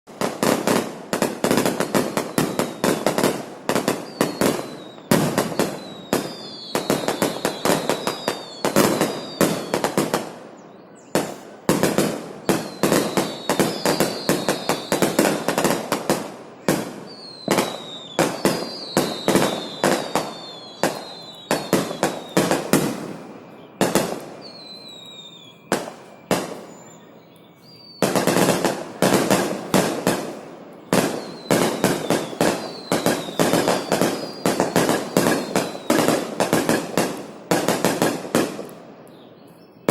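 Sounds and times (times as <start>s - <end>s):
firecrackers banging: 0.1s - 10.4s, 11.2s - 26.9s, 28.0s - 38.8s.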